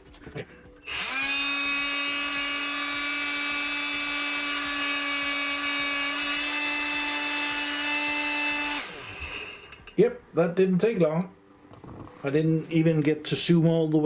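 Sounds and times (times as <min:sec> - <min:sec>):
handheld vacuum motor whine: 0:00.8 - 0:09.9.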